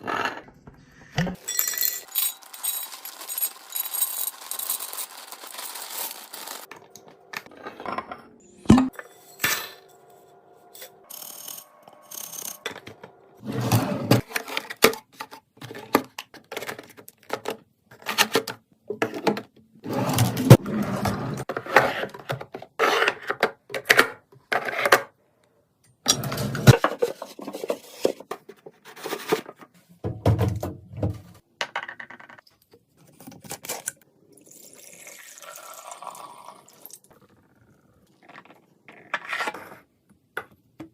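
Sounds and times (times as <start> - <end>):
packaging rustling: 2.4 - 6.7.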